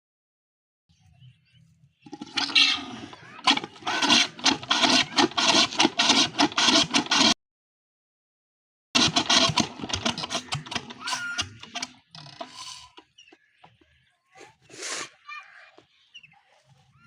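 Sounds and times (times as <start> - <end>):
diesel engine chugging: 2.1 - 7.4, 9.0 - 13.9.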